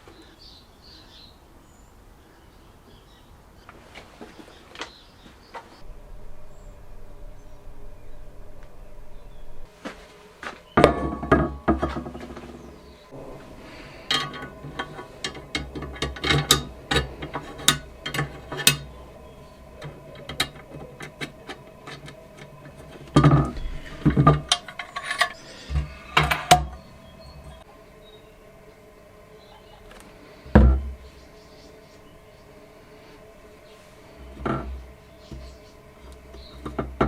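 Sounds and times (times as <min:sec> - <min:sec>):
tools clicking and knocking: 0:14.1 - 0:19.0, 0:19.8 - 0:26.8.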